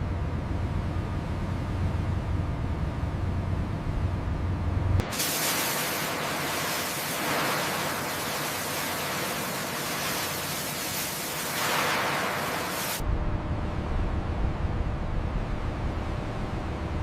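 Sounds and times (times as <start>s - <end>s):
dense rushing hiss: 5.0s - 13.0s.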